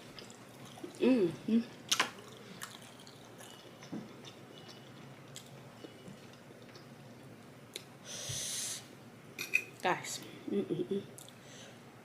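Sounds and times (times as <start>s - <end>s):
chewing with mouth clicks: 1.9s - 7.9s
short breathy hiss: 8.0s - 8.9s.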